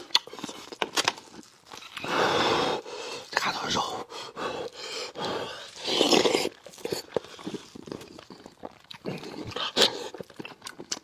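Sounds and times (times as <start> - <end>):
small mouth clicks: 0.0 - 0.9
wet chewing and lip smacking: 0.0 - 2.1, 5.6 - 11.0.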